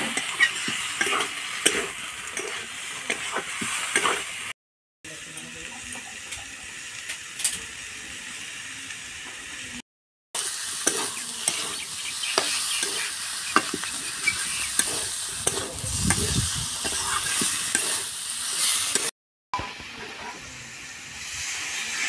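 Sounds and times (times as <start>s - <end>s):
spatula scraping and tapping pan: 0.0s - 4.2s, 10.8s - 18.1s
curry sizzling in a pan: 0.0s - 9.8s, 10.4s - 22.0s.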